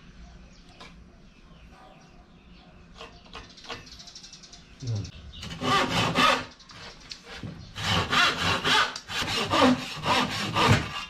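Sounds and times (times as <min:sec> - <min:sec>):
hand saw cutting board: 0:05.4 - 0:11.0.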